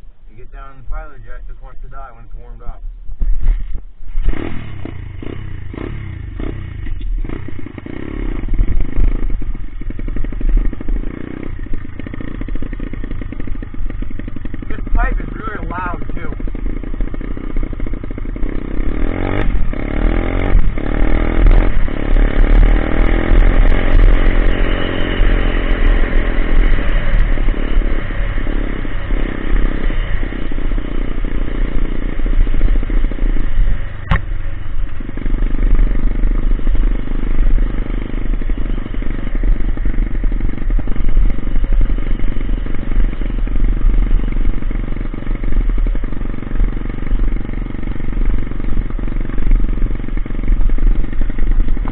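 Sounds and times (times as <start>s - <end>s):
pit bike engine revving: 0.3s - 51.9s
clatter: 3.2s - 51.9s
sharp knock: 34.0s - 34.3s.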